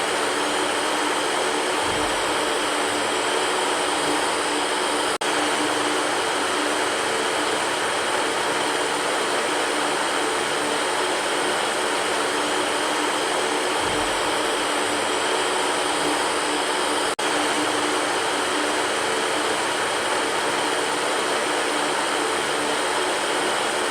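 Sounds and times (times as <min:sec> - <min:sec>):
electric fan running: 0:00.0 - 0:23.9.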